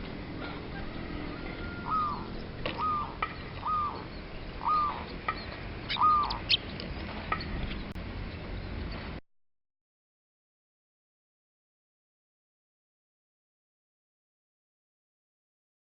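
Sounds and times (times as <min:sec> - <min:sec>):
bird hoarse calling notes: 0:00.4 - 0:07.9
sharp high bird chirps: 0:01.9 - 0:06.7.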